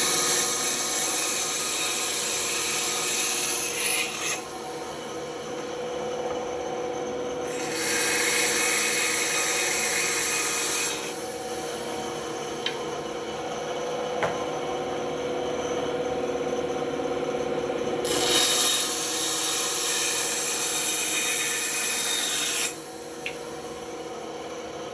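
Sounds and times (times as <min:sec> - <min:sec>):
saw blade cutting with hiss: 0:00.0 - 0:04.5, 0:07.5 - 0:11.4, 0:18.0 - 0:23.1
band saw humming: 0:00.0 - 0:13.9, 0:18.0 - 0:23.4.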